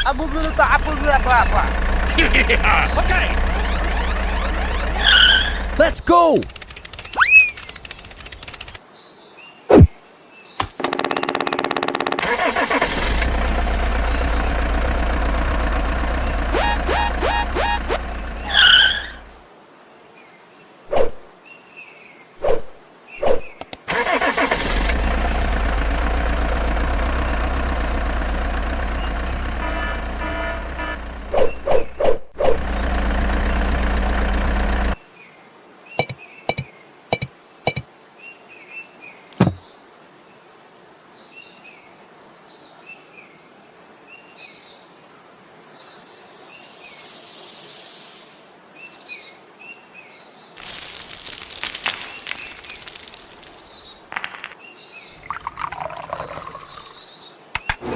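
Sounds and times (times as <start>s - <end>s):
engine running: 0.0s - 8.8s, 10.6s - 19.3s, 23.9s - 35.0s
birds chirping: 0.0s - 8.9s, 9.7s - 19.5s, 25.4s - 32.0s, 32.6s - 35.1s, 36.0s - 37.9s, 50.5s - 57.8s
sharp clicks: 3.0s - 8.8s, 10.6s - 13.4s, 23.6s - 23.9s
hiss: 45.3s - 48.6s.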